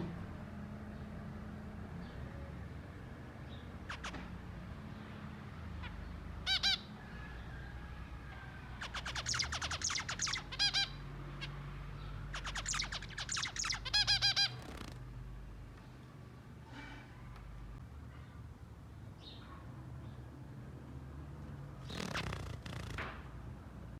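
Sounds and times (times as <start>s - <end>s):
finches calling and singing: 8.8s - 14.5s.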